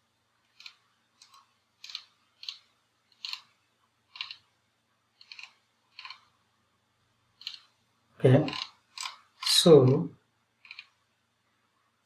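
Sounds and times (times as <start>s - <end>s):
computer mouse buttons clicking: 0.5s - 3.5s, 4.1s - 4.4s, 5.2s - 6.3s, 7.4s - 7.7s, 10.6s - 11.0s.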